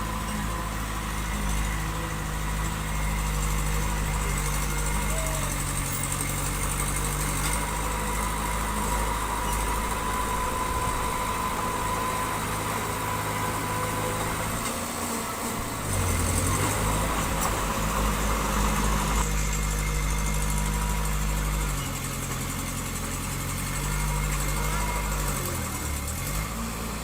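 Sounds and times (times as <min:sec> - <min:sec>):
diesel engine running: 0:00.0 - 0:27.0
thin steady whine: 0:07.6 - 0:21.1.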